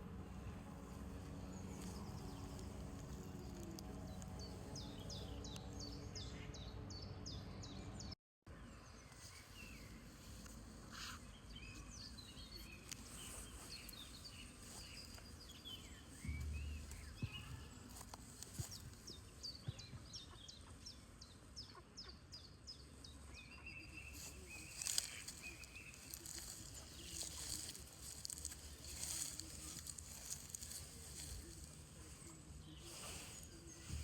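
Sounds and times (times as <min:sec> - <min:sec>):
songbirds singing: 0:00.0 - 0:34.0
low rumble: 0:16.2 - 0:17.8.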